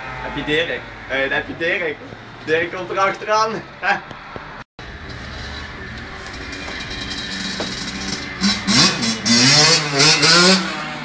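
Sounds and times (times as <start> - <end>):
dirt bike engine revving: 4.8 - 11.0.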